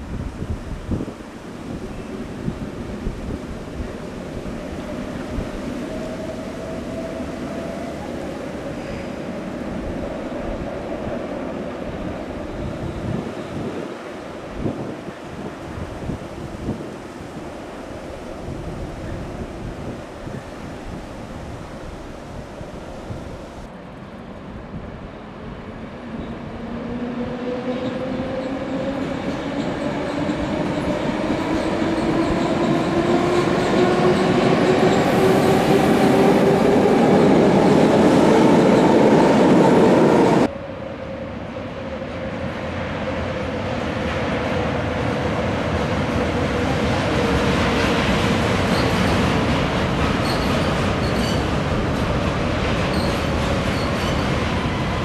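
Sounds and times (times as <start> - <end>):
trains rumbling across a steel bridge: 0.0 - 55.0
electric train whine: 25.2 - 47.8.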